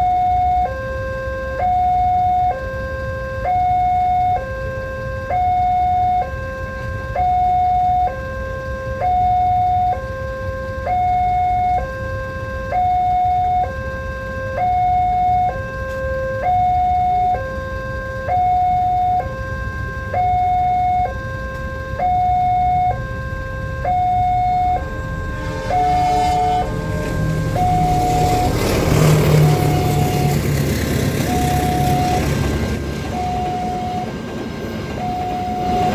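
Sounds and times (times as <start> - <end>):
two-tone level-crossing alarm: 0.0 - 35.9
broad noise: 18.2 - 35.9
steady low rumble: 21.6 - 35.9.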